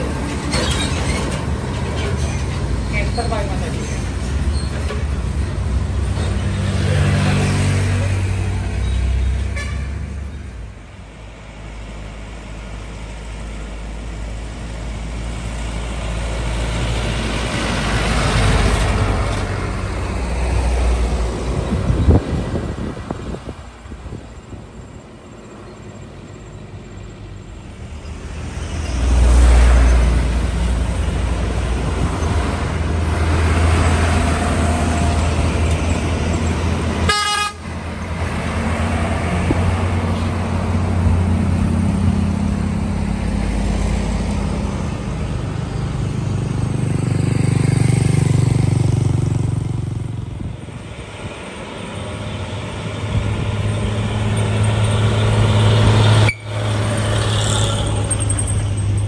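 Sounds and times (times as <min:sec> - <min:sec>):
diesel trucks passing: 0:00.0 - 0:59.0
truck horn toot: 0:09.4 - 0:10.0, 0:37.1 - 0:37.7.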